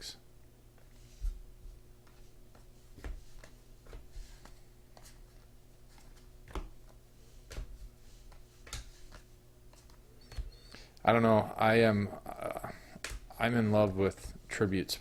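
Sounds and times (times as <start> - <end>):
faint steady hum: 0.0 - 15.0
cards clicking and tapping: 8.3 - 10.5, 13.0 - 13.3.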